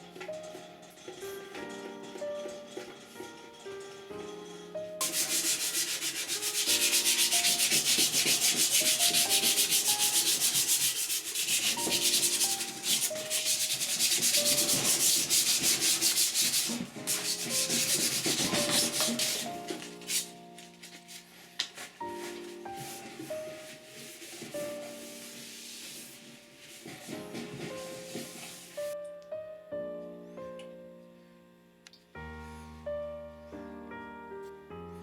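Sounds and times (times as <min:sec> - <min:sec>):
light background music: 0:00.0 - 0:35.0
abrasive rubbing strokes: 0:05.0 - 0:21.5.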